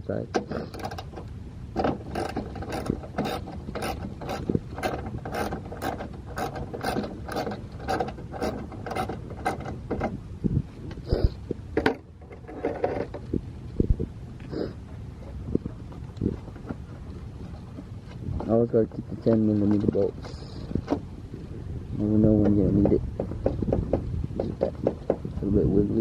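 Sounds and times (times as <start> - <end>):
knocks: 22.4 - 25.3.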